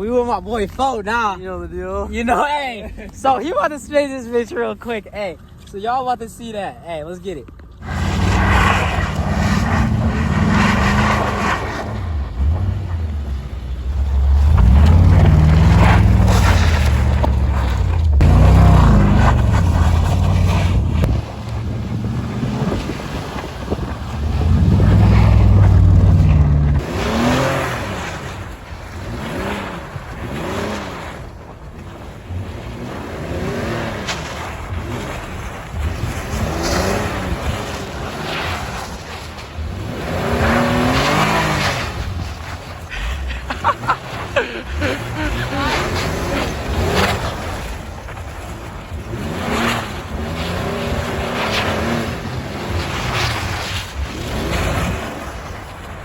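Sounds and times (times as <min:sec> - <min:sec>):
vehicle engine revving: 0:07.8 - 0:31.3, 0:32.3 - 0:55.4
loud low rumble: 0:12.1 - 0:22.8, 0:24.0 - 0:26.8.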